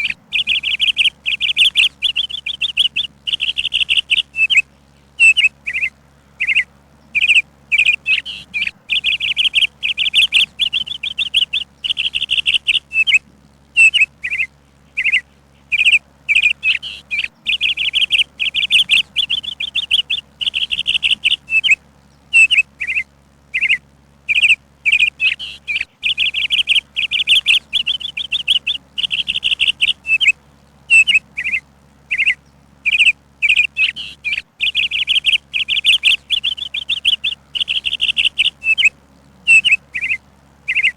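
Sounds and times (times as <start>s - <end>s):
songbird chirping and trilling: 0.0s - 40.9s.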